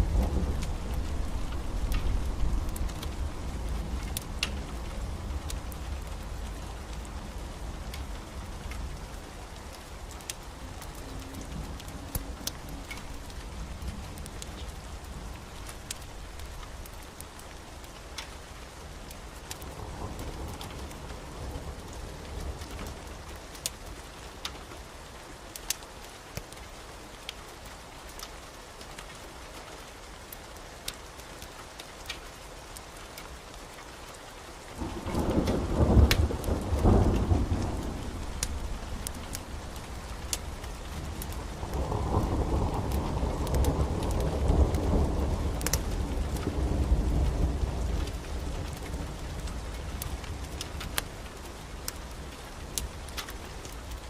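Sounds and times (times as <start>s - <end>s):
low roll of thunder: 0.0s - 7.9s, 34.8s - 50.7s
fireplace fire crackling: 0.0s - 54.0s
steady rain: 0.0s - 54.0s.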